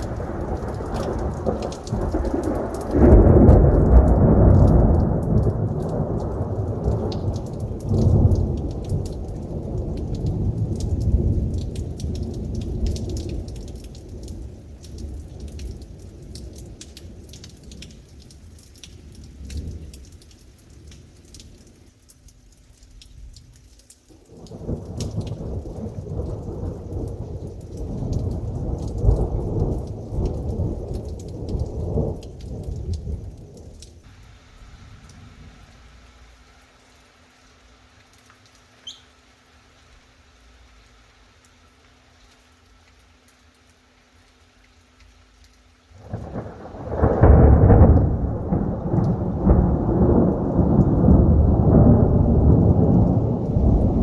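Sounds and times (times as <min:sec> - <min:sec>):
thunder rumbling: 0:00.0 - 0:18.1, 0:24.3 - 0:36.3, 0:46.0 - 0:54.0
heavy rain pattering: 0:00.0 - 0:54.0.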